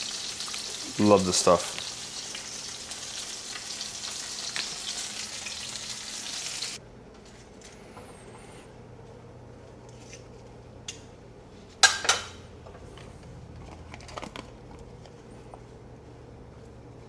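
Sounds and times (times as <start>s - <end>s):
steady low hum: 6.8s - 17.0s
dishes and utensils clinking: 11.8s - 12.4s
dishes clattering: 11.8s - 12.4s.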